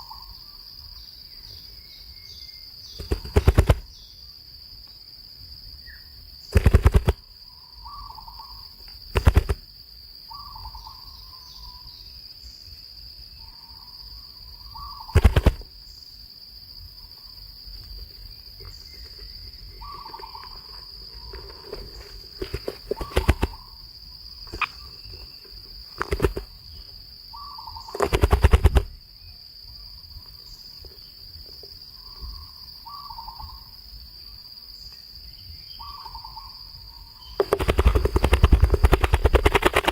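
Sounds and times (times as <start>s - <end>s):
high insect drone: 0.0s - 39.9s
loud rattling bursts: 3.0s - 3.8s, 6.5s - 7.2s, 9.1s - 9.6s, 15.2s - 15.7s, 22.4s - 23.6s, 28.0s - 28.9s, 37.4s - 39.9s
short bird calls: 18.6s - 23.8s, 24.4s - 29.0s.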